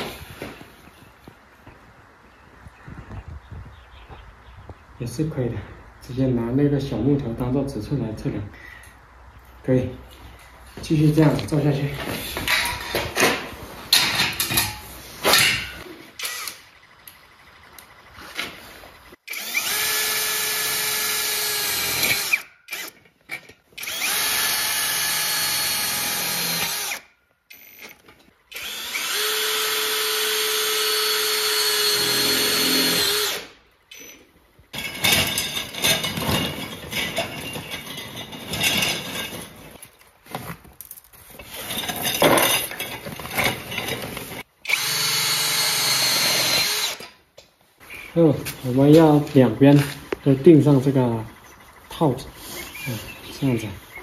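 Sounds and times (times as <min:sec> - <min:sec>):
knocks and clatter of parts: 0:10.2 - 0:15.9, 0:33.9 - 0:44.5
electric drill whining: 0:16.2 - 0:18.3, 0:19.3 - 0:23.0, 0:23.8 - 0:33.6, 0:44.6 - 0:47.2.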